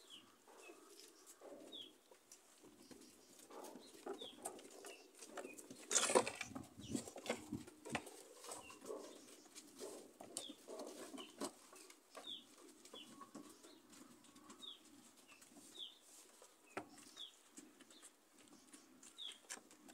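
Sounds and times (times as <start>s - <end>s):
hooves knocking on wooden boards: 16.6s - 19.9s.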